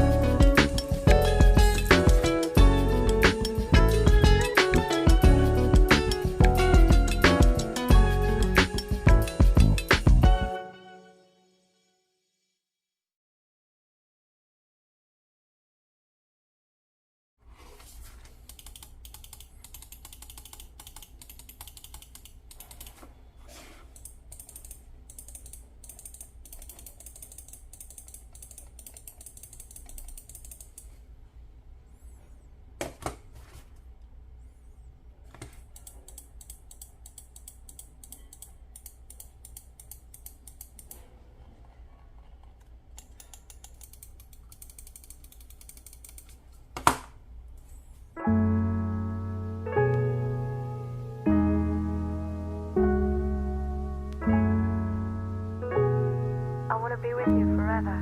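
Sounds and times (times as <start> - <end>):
mechanical keyboard typing: 18.4 - 23.0, 23.9 - 30.9, 43.0 - 46.4.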